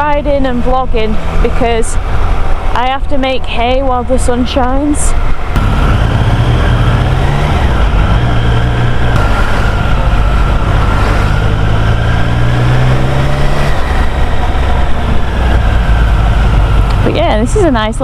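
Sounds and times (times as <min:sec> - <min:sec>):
motorcycle engine running: 0:00.0 - 0:18.0
wind noise on microphone: 0:00.0 - 0:18.0.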